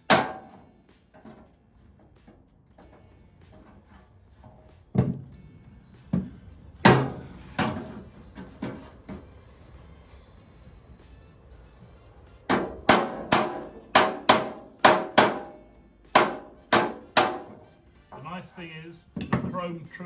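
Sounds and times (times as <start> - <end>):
hammer tapping on steel: 12.5 - 15.6, 16.2 - 17.6.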